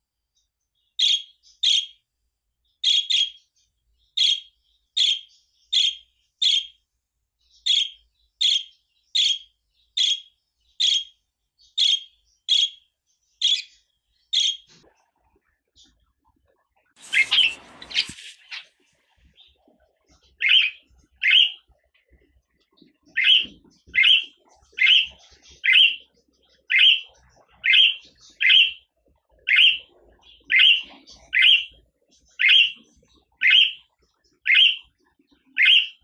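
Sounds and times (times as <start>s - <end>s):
budgerigar chirping: 1.0s - 2.0s, 2.8s - 3.5s, 4.1s - 6.8s, 7.6s - 14.7s, 17.0s - 18.7s, 20.4s - 21.7s, 23.1s - 36.0s.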